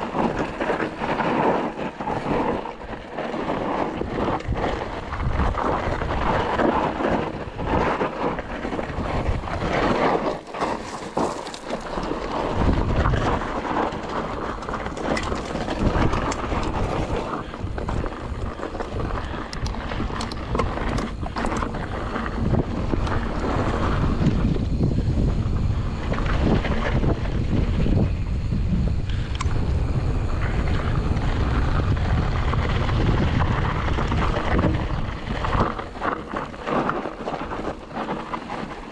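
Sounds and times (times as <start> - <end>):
bike knocks and rattles: 0.0 - 28.5
tyres rolling over dirt and rock: 0.0 - 38.9
wind buffeting microphone: 0.0 - 38.9.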